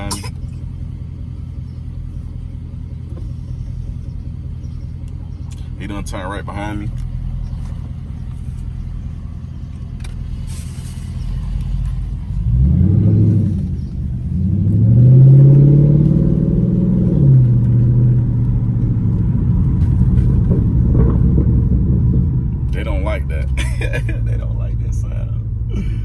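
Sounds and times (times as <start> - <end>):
car engine rumbling and revving: 0.0 - 26.0.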